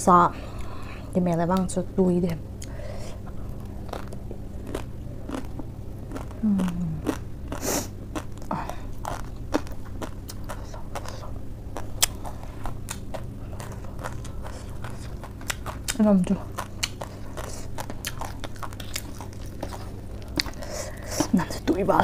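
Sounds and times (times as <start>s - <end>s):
crunching and chewing lettuce: 2.6s - 21.7s.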